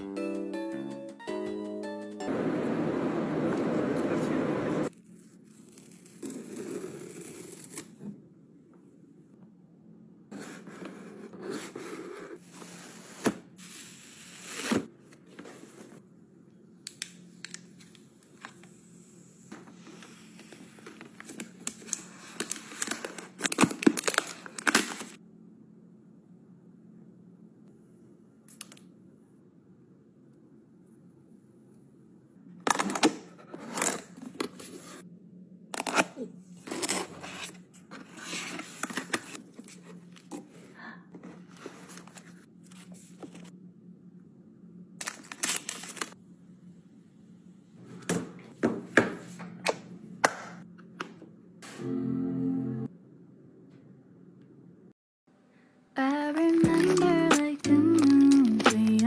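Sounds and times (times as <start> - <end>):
packaging crinkling and tearing: 20.9 - 25.2, 45.0 - 46.2, 56.5 - 59.0.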